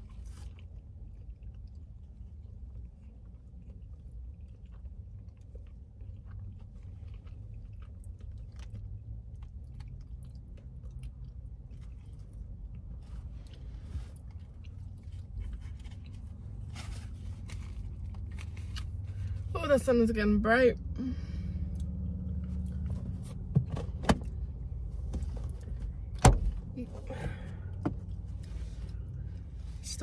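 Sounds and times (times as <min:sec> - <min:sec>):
person chewing with crunches: 0:00.0 - 0:19.5, 0:21.5 - 0:23.5.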